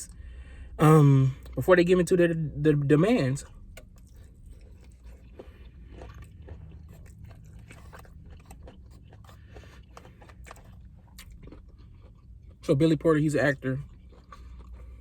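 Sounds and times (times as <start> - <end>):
low steady hum: 0.0 - 15.0
close chewing with wet smacks: 3.4 - 15.0.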